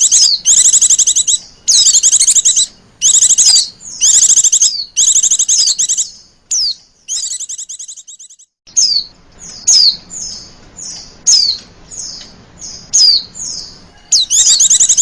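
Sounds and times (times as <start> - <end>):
bird chirps sliding down in pitch: 0.0 - 9.0, 14.1 - 15.0
bird rapid high trill: 0.0 - 9.1, 13.0 - 15.0.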